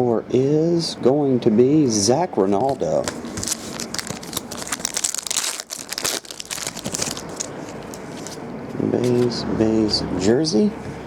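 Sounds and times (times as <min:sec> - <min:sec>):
card packaging crinkling: 0:02.6 - 0:08.4.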